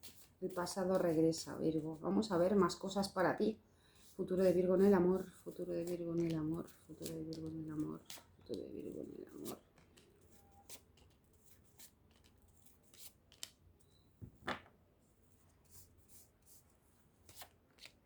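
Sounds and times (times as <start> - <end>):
cards being shuffled: 5.8 - 13.6, 17.2 - 18.0.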